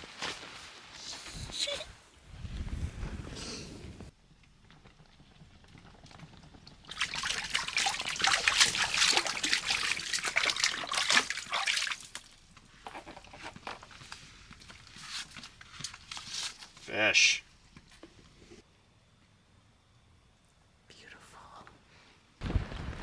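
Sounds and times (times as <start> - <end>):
water splashing and trickling: 6.6 - 12.4.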